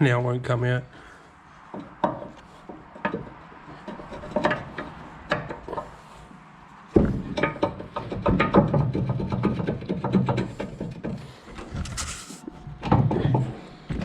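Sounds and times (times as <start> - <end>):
metallic clicks and knocks: 1.7 - 6.0, 6.9 - 12.0.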